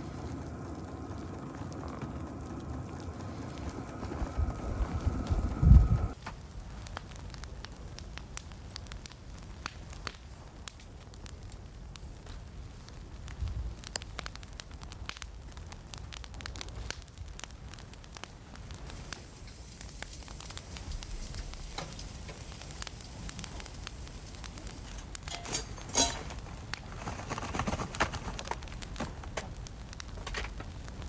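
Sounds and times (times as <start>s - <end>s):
fire crackling and popping: 0.0s - 31.0s.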